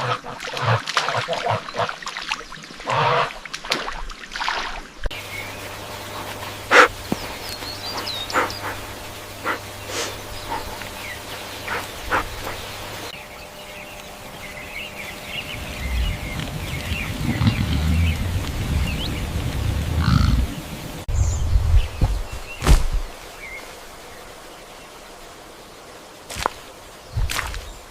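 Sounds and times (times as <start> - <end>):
small birds chirping: 5.1 - 27.9
low animal sounds: 15.6 - 18.5.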